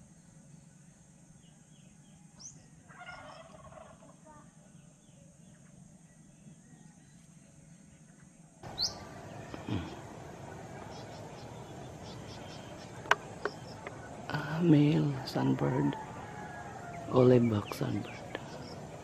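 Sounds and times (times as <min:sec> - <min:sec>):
birds chirping: 0:04.6 - 0:19.0
harsh fowl-like bird call: 0:08.7 - 0:17.4.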